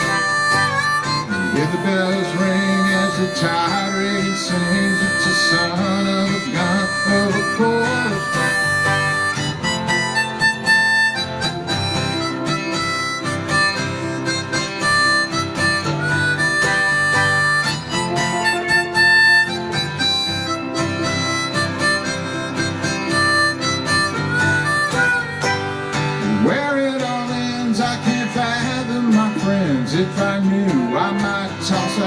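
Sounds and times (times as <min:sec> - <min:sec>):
harmonica solo: 0:00.0 - 0:32.0
strummed acoustic guitar: 0:00.0 - 0:32.0.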